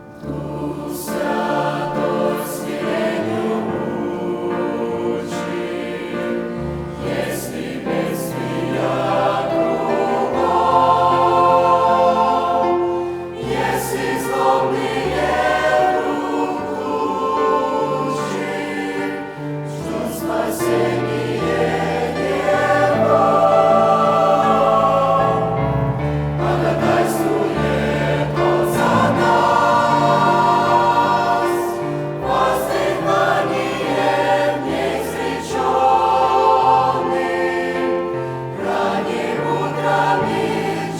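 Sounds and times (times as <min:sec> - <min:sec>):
church choir singing a hymn: 0:00.0 - 0:40.9.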